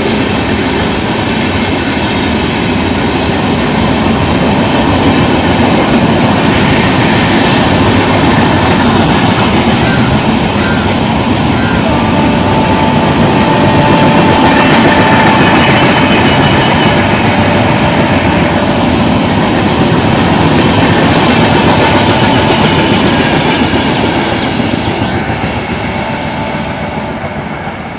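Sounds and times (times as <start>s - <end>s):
wheels rumbling on rail: 0.0s - 27.9s.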